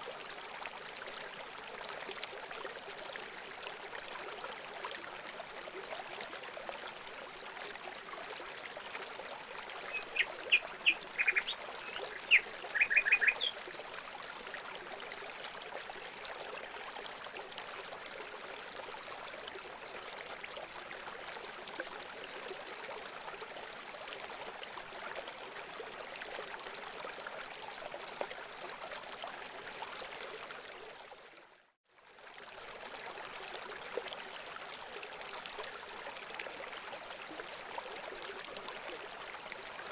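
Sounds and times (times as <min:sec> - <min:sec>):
running water trickling: 0:00.0 - 0:31.1
loud bird calls: 0:09.9 - 0:13.5.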